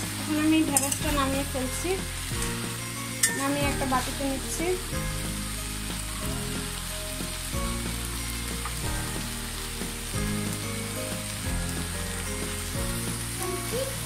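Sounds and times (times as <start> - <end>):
okra sizzling: 0.0 - 14.0
slow background music: 0.0 - 14.0.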